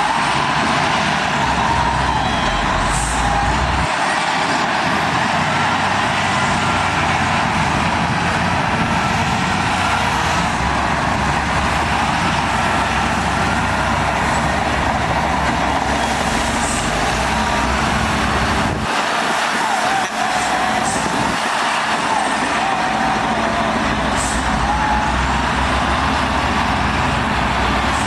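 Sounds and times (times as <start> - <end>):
heavy machinery diesel engine: 0.0 - 28.0.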